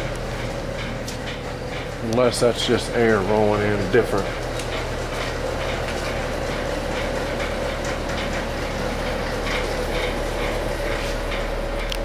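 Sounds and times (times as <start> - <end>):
machine hum with whine: 0.0 - 12.0.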